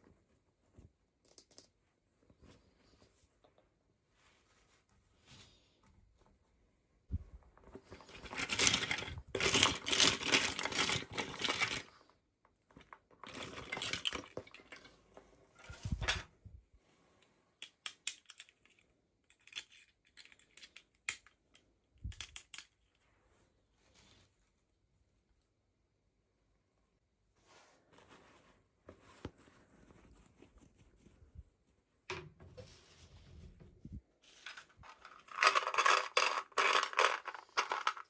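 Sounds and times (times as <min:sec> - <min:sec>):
packaging crinkling and rustling: 0:07.8 - 0:12.0, 0:34.3 - 0:38.0
plastic pieces clicking: 0:08.0 - 0:11.9, 0:13.2 - 0:14.9, 0:17.6 - 0:22.9, 0:34.4 - 0:38.0.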